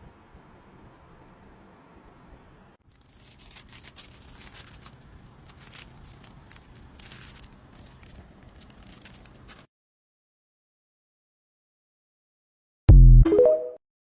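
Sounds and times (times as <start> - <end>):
scratching and rustling by hand: 2.8 - 9.7.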